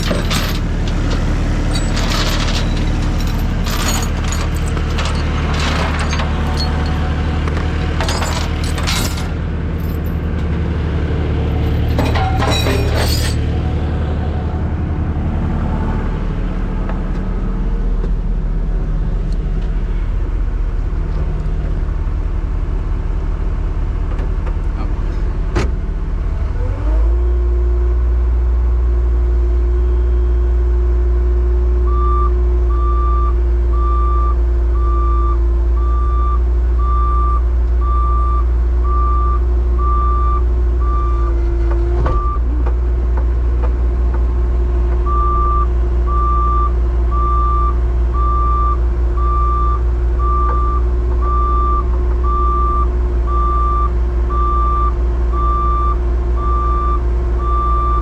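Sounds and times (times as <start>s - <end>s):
tow truck engine whine: 0.0s - 58.0s
backup alarm beeping: 45.1s - 58.0s.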